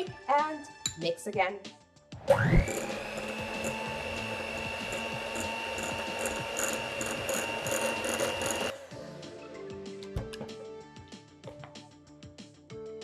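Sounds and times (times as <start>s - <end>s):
electric mixer whirring: 2.2s - 8.8s.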